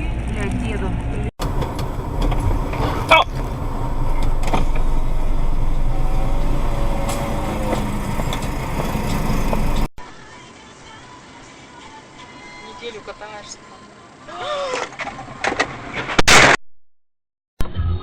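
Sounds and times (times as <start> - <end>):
car engine and road noise: 0.0 - 10.3.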